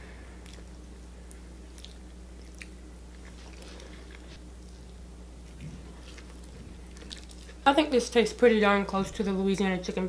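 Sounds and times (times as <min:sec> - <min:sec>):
low electrical hum: 0:00.0 - 0:10.0
person chewing pasta: 0:00.4 - 0:07.6.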